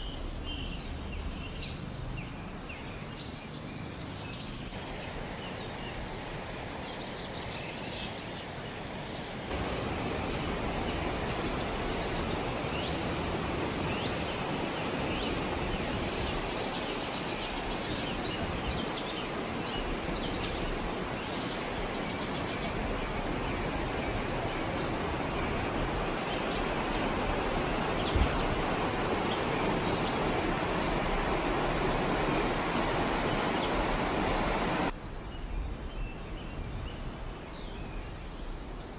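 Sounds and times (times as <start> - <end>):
songbirds chirping: 0.0 - 38.9
steady outdoor rushing: 9.5 - 34.9.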